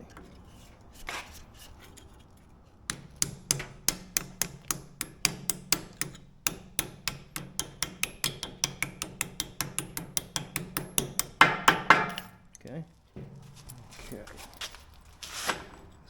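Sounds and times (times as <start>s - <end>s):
hammer tapping on steel: 2.9s - 12.5s, 13.2s - 14.2s.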